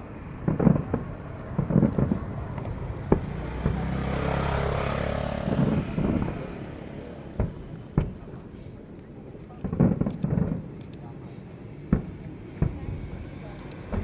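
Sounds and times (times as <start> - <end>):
vehicle passing by: 0.2 - 8.0.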